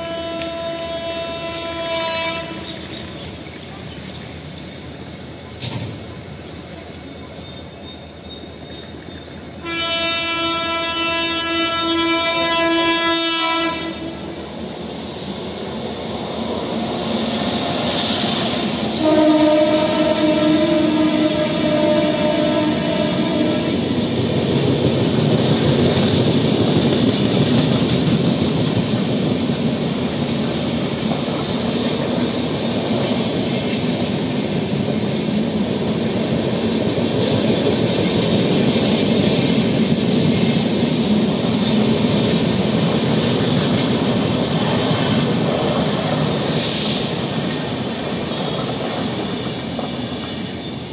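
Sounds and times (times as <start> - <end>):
train wheels rumbling and clattering: 0.0 - 50.9
high-pitched hiss: 14.2 - 19.0, 46.1 - 47.8.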